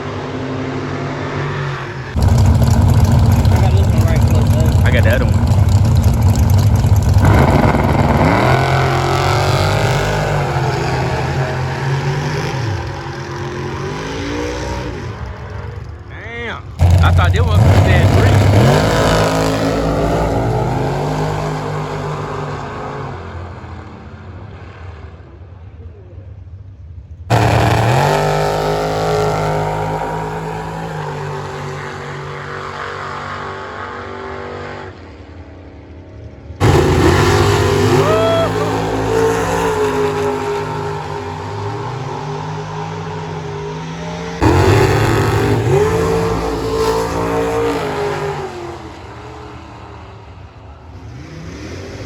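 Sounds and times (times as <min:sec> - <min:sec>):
car engine at full throttle: 0:00.0 - 0:25.9, 0:26.9 - 0:52.0.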